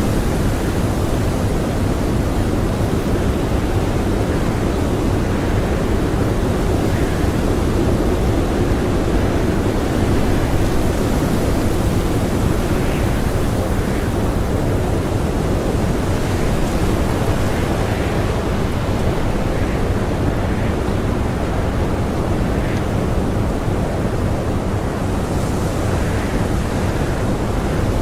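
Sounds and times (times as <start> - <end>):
faint wind howl: 0.0 - 28.0
strong blizzard wind: 0.0 - 28.0.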